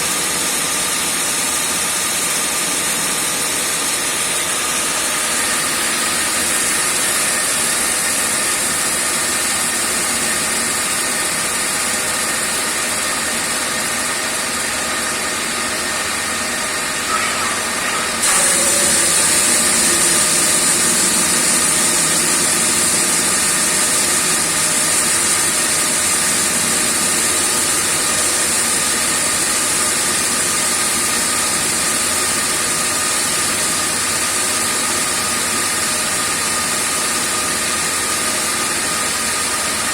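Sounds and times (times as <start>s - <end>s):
grinder whining: 16.1s - 29.0s.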